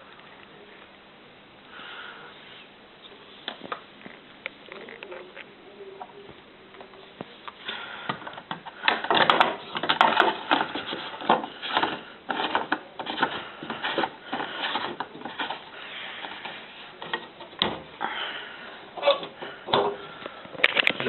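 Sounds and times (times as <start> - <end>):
plastic parts clattering and scraping: 8.1 - 17.9, 20.6 - 21.0.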